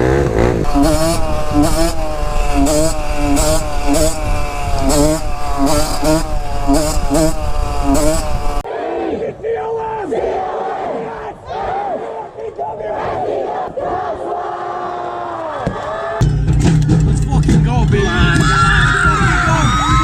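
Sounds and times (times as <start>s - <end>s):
vehicle engine at high revs: 0.0s - 8.6s.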